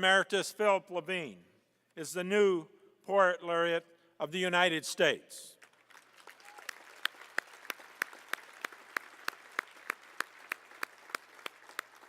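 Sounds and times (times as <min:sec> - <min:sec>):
loud nearby hand clapping: 0:05.6 - 0:12.0
audience applauding: 0:05.7 - 0:12.0.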